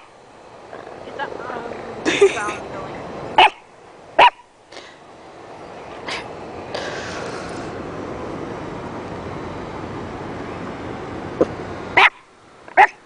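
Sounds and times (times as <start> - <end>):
dog yip: 3.4 - 3.6, 4.2 - 4.5, 12.0 - 12.2, 12.8 - 13.0.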